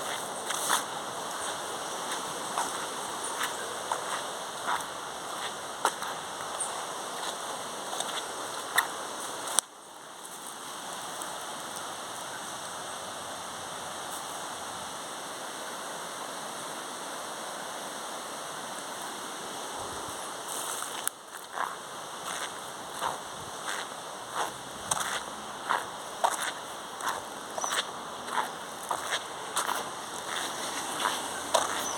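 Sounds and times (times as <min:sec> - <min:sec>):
water rushing: 0:00.0 - 0:09.6, 0:18.8 - 0:31.9.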